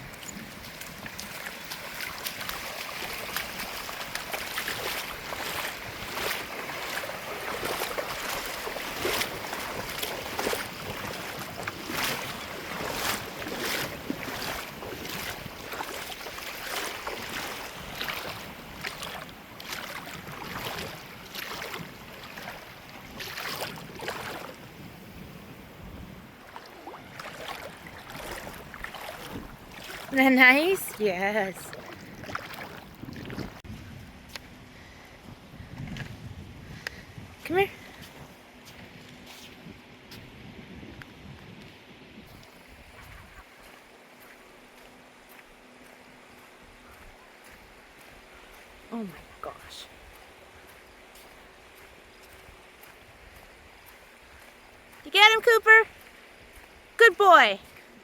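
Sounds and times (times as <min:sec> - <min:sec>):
wind on microphone: 0:00.0 - 0:30.2, 0:30.8 - 0:43.6
ocean surf on shore: 0:00.0 - 0:33.7.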